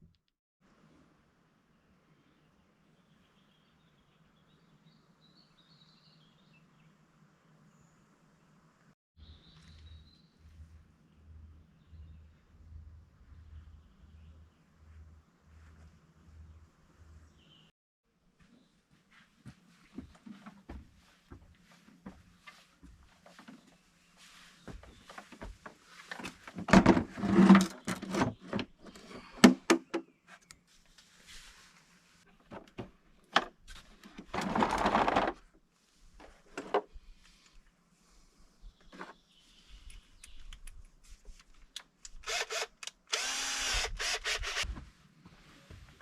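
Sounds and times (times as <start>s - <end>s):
tools and parts clattering: 34.1s - 35.4s
small power tool running: 42.2s - 44.7s.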